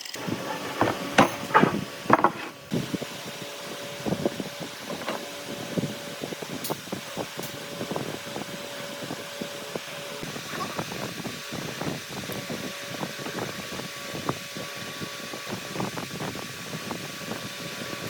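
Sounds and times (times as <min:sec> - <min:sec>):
steady background hum: 0:00.1 - 0:12.6
hand tools tapping wood: 0:00.2 - 0:02.7.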